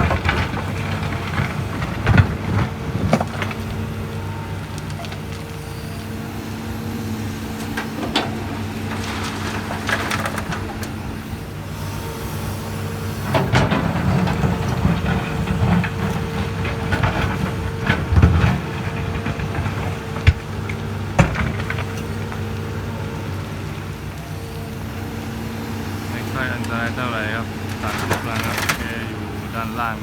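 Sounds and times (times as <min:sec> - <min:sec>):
bucket rattles and clunks: 0:00.0 - 0:04.0, 0:07.6 - 0:11.2, 0:13.2 - 0:23.2, 0:26.1 - 0:30.0
excavator diesel engine running: 0:00.0 - 0:30.0.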